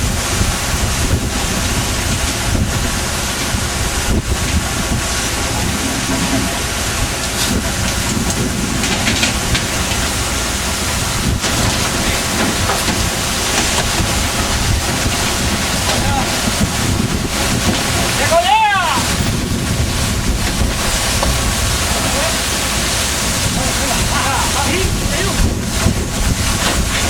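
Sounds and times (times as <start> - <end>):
boat engine: 0.0 - 27.0
sea: 0.0 - 27.0
wind: 0.0 - 27.0
wind buffeting microphone: 0.0 - 27.0.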